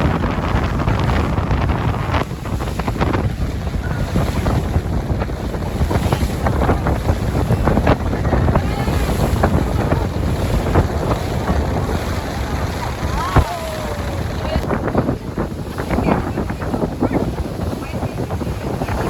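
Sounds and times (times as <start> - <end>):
wind buffeting the microphone: 0.0 - 19.0.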